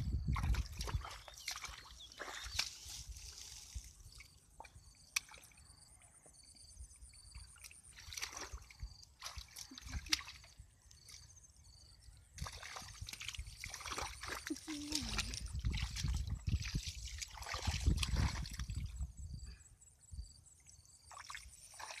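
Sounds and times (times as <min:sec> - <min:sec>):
water splashing and sloshing: 0:00.0 - 0:05.6, 0:07.1 - 0:11.3, 0:12.4 - 0:19.0, 0:20.7 - 0:22.0
sharp slaps in water: 0:05.1 - 0:05.4.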